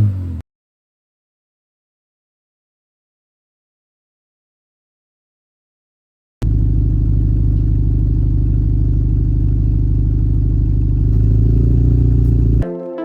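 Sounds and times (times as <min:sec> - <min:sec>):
car engine idling: 0:06.4 - 0:12.6.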